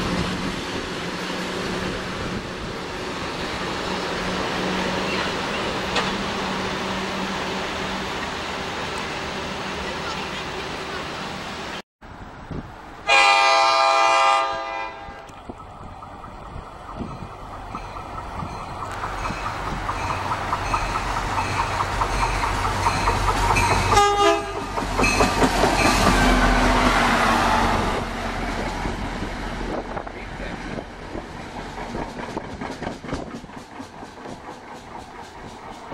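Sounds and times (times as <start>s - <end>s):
diesel locomotive passing: 0.0s - 35.9s
train wheels clickety-clack: 5.8s - 6.2s, 15.4s - 27.0s, 28.4s - 35.9s
train horn blast: 13.1s - 15.3s, 23.9s - 24.7s
locomotive bell ringing: 17.0s - 26.5s.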